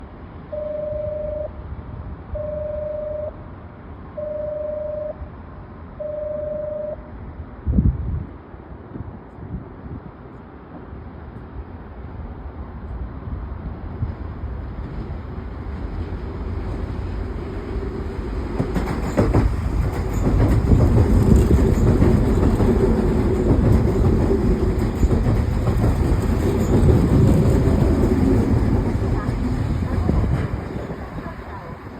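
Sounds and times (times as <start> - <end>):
electric train passing: 10.7 - 31.9
wheels knocking over rail joints: 18.6 - 31.2.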